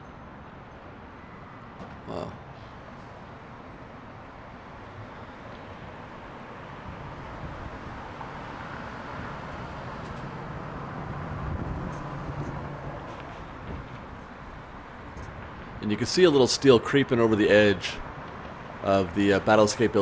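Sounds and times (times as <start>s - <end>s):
traffic rumble: 0.2s - 20.0s
vehicle engine humming: 5.5s - 20.0s.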